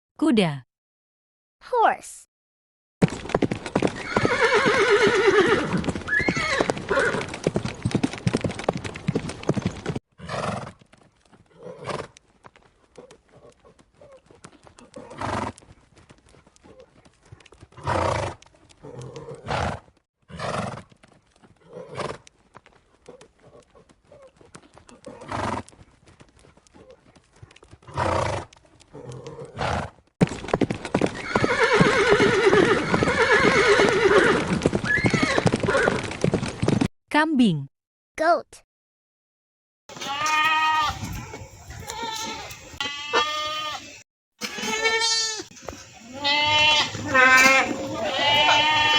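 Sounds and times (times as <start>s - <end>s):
horse hooves clopping: 3.0s - 36.9s, 39.9s - 48.9s
horse whinnying: 3.8s - 7.5s, 31.1s - 36.0s, 39.9s - 48.9s.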